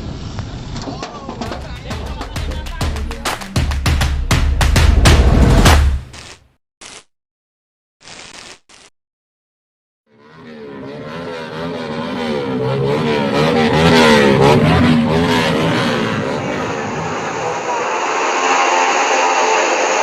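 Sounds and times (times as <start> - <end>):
motorcycle engines revving: 10.1 - 20.0.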